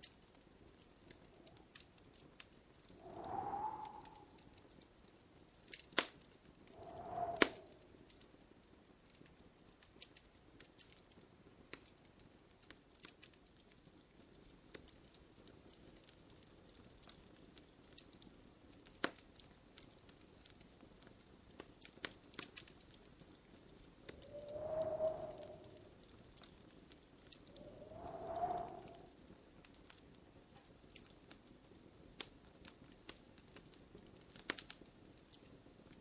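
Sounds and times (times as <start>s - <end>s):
wood fire crackling: 0.0s - 36.0s
sharp pops of fire: 5.8s - 7.8s, 33.0s - 35.5s.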